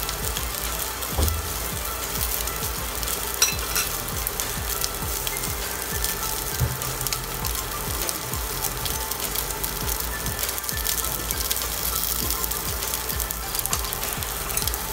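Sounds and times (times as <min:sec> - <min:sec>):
meat sizzling in hot oil: 0:00.0 - 0:14.9
oil popping: 0:00.0 - 0:14.9.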